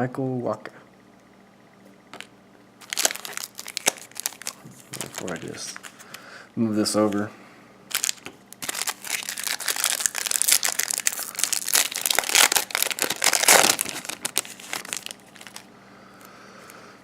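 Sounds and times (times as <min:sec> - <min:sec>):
plastic wrapper crinkling: 0:02.2 - 0:06.1, 0:07.9 - 0:15.7.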